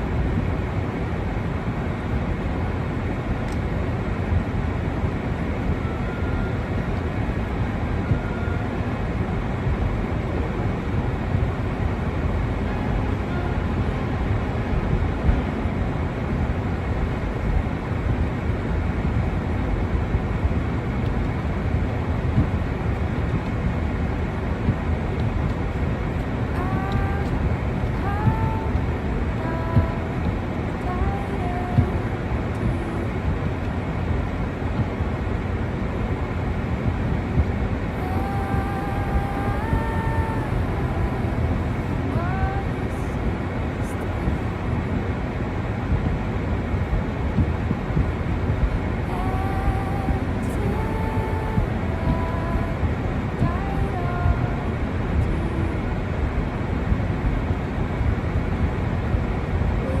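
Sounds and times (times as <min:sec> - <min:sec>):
outdoor rumble and hiss: 0:00.0 - 1:00.0
wind: 0:00.0 - 1:00.0
faint held tones: 0:05.4 - 0:17.4.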